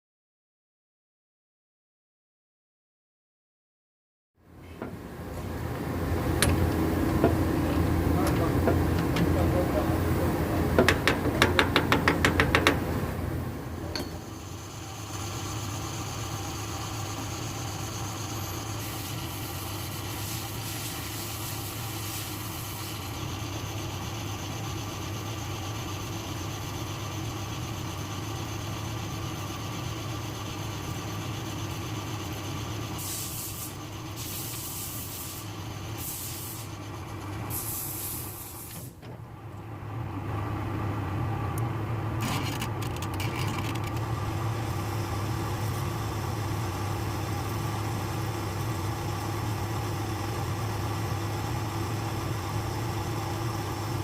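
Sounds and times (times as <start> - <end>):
lathe humming: 4.8 - 37.5, 44.0 - 54.0
hiss: 14.3 - 27.8, 29.8 - 36.9, 37.5 - 39.0.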